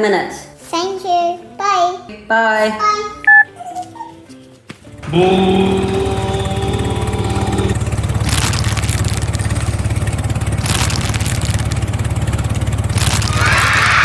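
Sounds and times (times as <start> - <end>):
small engine running: 5.0 - 14.0.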